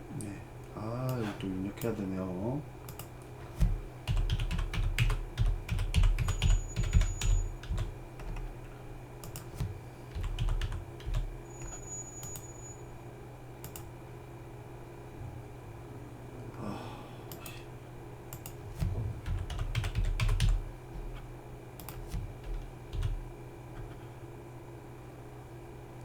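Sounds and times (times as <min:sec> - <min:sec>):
steady low hum: 0:00.0 - 0:26.0
typing on computer keyboard: 0:02.9 - 0:08.5, 0:09.2 - 0:11.3, 0:18.3 - 0:21.2, 0:21.8 - 0:23.2.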